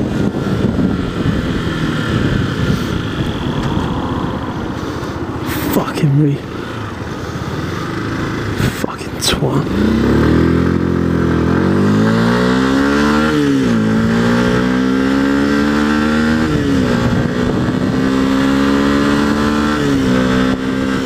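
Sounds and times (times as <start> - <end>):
motorcycle engine revving through gears: 0.0 - 4.5, 6.6 - 21.0
wind rushing: 0.0 - 5.4, 9.6 - 21.0.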